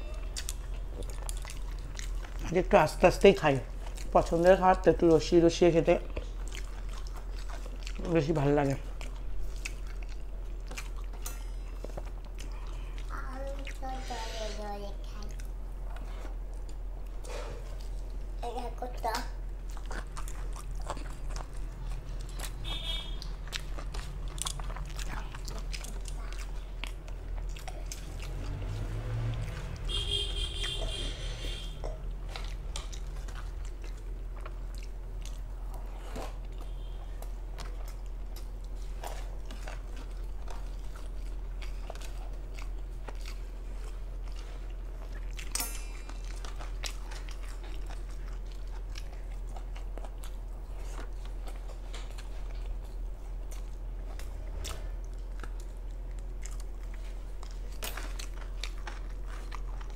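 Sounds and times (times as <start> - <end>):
wet chewing: 0.1 - 59.9.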